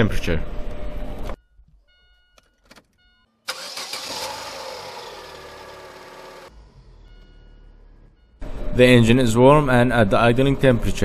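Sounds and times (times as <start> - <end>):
car engine starting and idling: 1.6 - 9.8.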